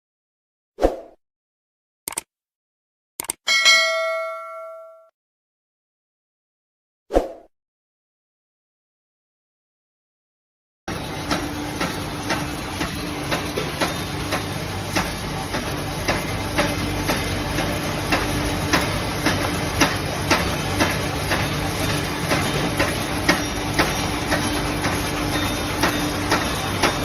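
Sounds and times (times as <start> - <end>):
machine motor hum: 10.9 - 27.0.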